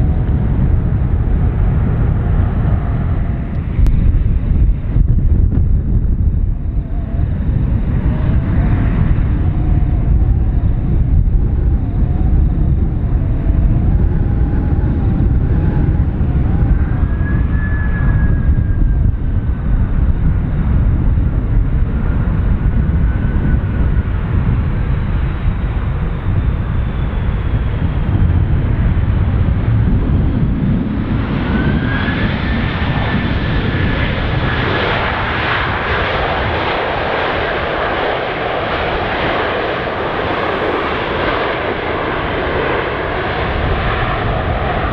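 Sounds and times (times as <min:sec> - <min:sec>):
jet engines rumbling and whining: 0:00.0 - 0:44.9.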